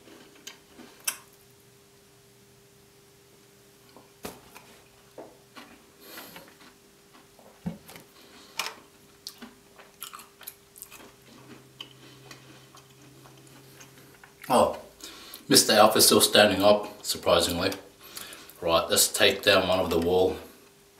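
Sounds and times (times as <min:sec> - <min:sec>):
close-miked chewing: 0:05.5 - 0:15.4.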